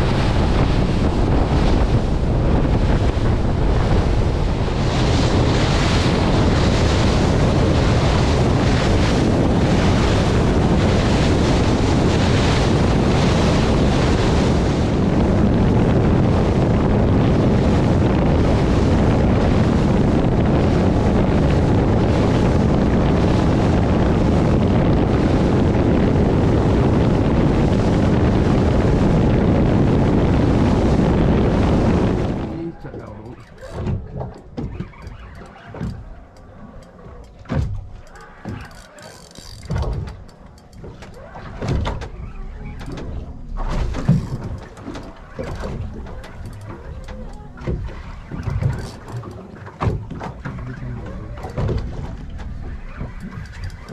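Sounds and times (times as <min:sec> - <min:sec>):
rushing water and waves: 0:00.0 - 0:53.9
wind buffeting microphone: 0:00.0 - 0:53.9.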